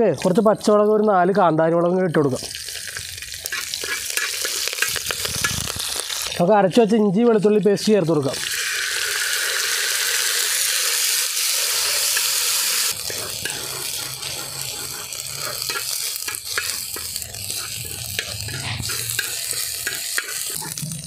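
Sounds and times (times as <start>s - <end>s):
paste sizzling in hot oil: 0.0s - 21.0s
metal spoon scraping pan: 3.5s - 5.6s, 11.7s - 21.0s.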